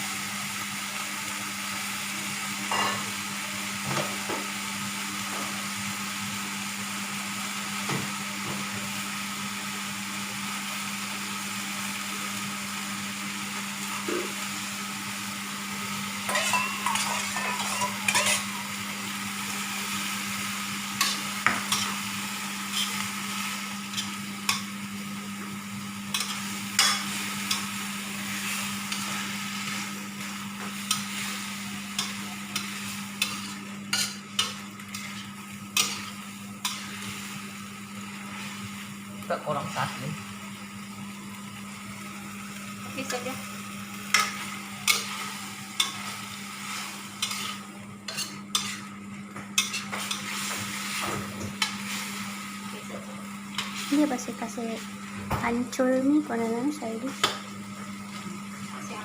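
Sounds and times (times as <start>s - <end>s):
food sizzling in a frying pan: 0.0s - 59.0s
spatula scraping a pan: 16.3s - 18.8s, 22.7s - 23.1s, 30.8s - 37.2s, 44.1s - 48.9s, 49.6s - 52.2s.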